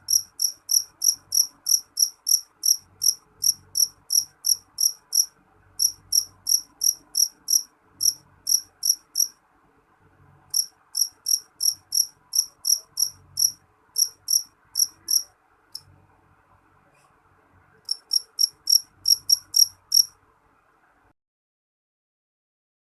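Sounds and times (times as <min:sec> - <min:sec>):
cricket chirping shrilly: 0:00.0 - 0:09.4, 0:10.5 - 0:15.3, 0:17.9 - 0:20.1.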